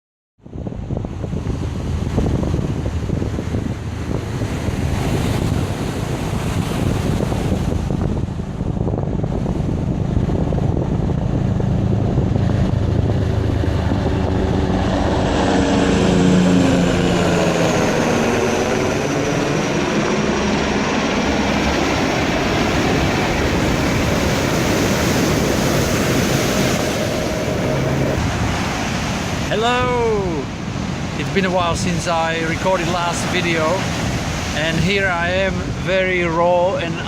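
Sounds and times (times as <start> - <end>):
helicopter flying over: 0.4 - 37.0
ocean surf: 0.5 - 37.0.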